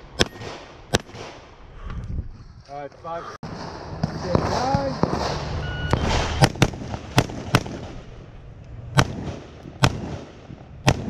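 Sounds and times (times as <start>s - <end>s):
gunshots: 0.0s - 1.5s, 3.4s - 8.2s, 8.9s - 11.0s.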